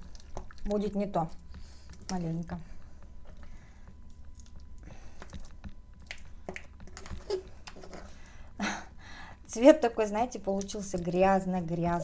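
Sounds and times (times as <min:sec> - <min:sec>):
person chewing paste: 0:00.0 - 0:02.1, 0:02.8 - 0:08.3.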